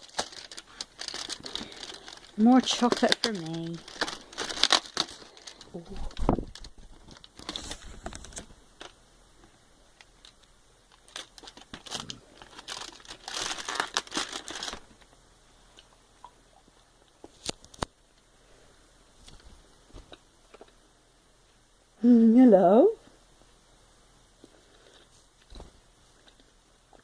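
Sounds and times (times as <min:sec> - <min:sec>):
crinkly packaging rustling: 0:00.0 - 0:09.0, 0:10.0 - 0:15.2.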